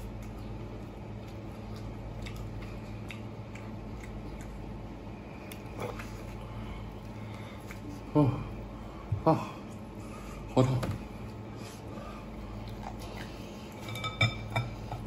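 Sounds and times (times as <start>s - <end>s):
person chewing meat: 0.0s - 13.8s
low hum: 0.0s - 15.0s
wet mouth clicks and smacks: 1.3s - 4.8s.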